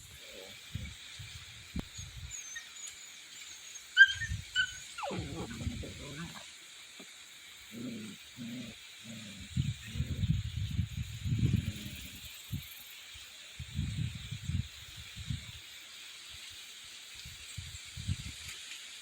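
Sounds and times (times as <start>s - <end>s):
wind rumbling on microphone: 0.0s - 2.4s, 4.1s - 6.5s, 8.1s - 12.9s, 13.6s - 15.6s, 17.2s - 18.5s
steady high hiss: 0.0s - 19.0s.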